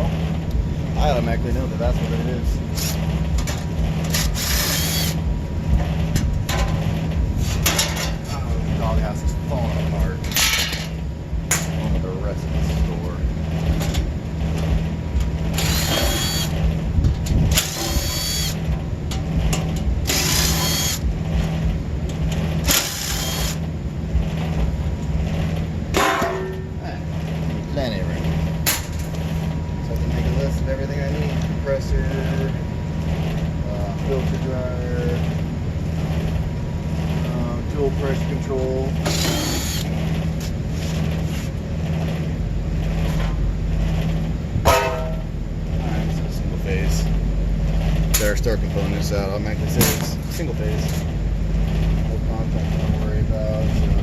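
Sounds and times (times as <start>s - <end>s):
low hum: 0.0s - 54.0s
low rumble: 0.0s - 54.0s
power drill running: 4.1s - 5.2s, 15.6s - 16.6s, 17.6s - 18.6s, 20.1s - 21.0s, 22.6s - 23.6s, 39.0s - 39.9s.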